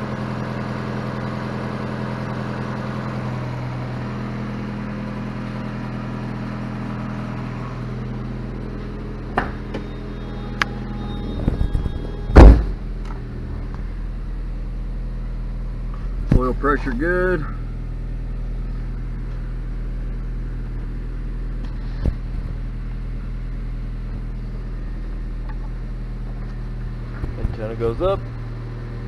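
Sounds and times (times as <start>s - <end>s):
car engine idling: 0.0s - 29.0s
loud thump: 11.4s - 13.2s.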